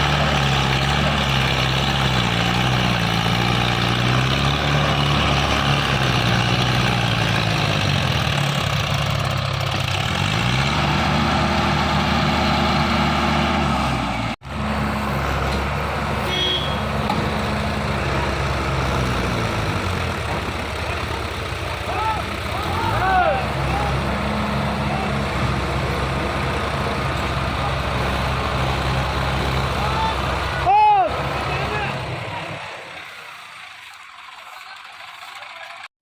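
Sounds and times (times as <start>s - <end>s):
tractor engine running: 0.0s - 35.9s.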